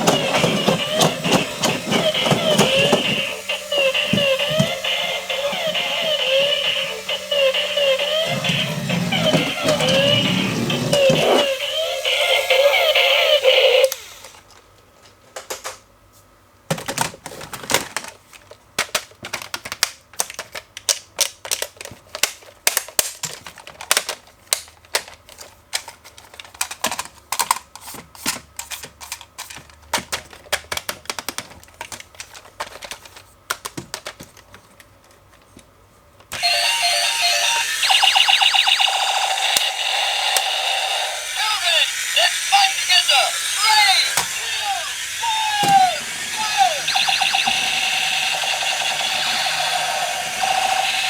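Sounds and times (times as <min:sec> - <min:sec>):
electronic music with pulsing beeps: 0:00.2 - 0:13.4, 0:36.4 - 0:51.0
plastic clicks and knocks: 0:29.1 - 0:35.2.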